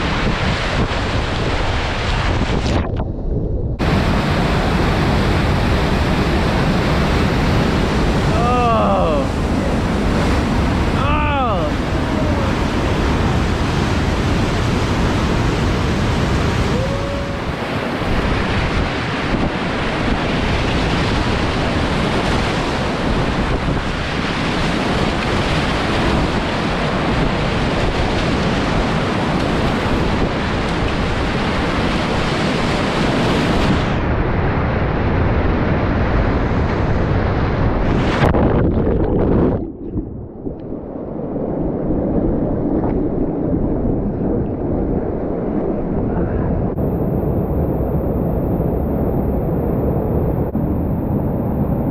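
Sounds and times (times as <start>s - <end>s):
river rapid rushing and splashing: 3.8s - 34.0s.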